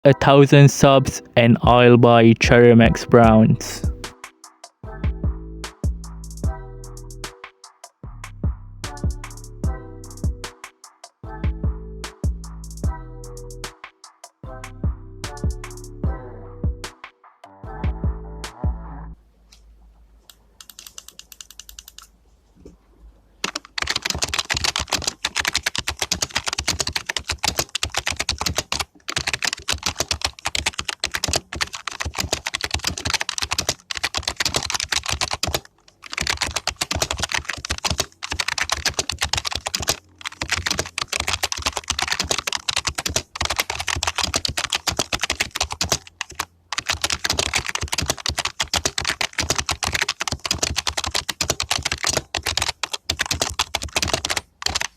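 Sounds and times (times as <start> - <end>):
fast typing on keyboard: 20.6 - 22.1, 23.4 - 54.9.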